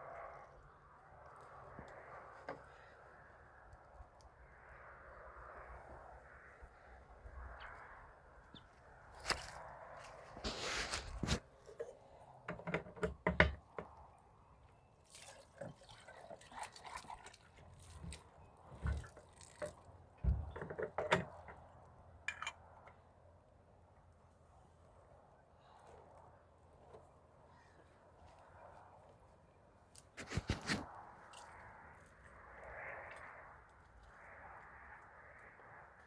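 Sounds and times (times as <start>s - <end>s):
water splashing and dripping: 15.0s - 19.9s.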